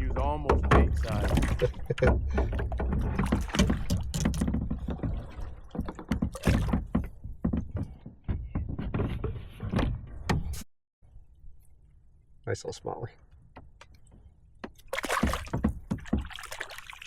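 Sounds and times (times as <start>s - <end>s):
knocks against canoe hull: 14.6s - 16.4s.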